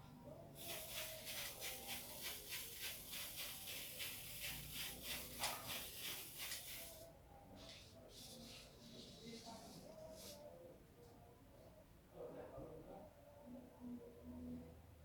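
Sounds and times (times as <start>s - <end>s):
tool rubbing paint onto wall: 0.6s - 7.0s.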